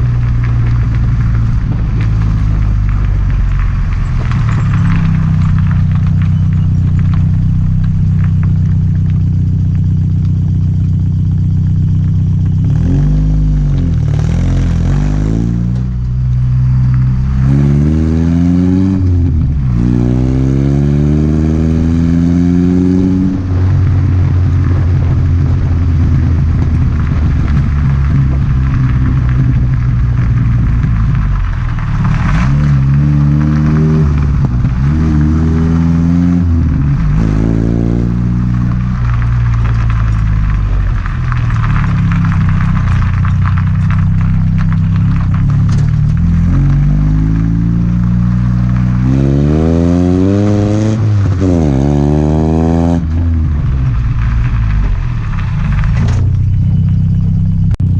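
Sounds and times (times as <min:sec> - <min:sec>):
pickup truck engine revving: 0:00.0 - 0:29.8, 0:30.4 - 0:57.9.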